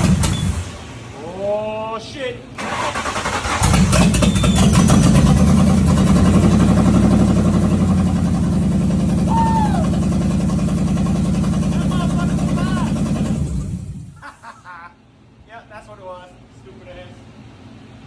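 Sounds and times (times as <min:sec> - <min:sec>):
car engine running: 0:03.6 - 0:14.2.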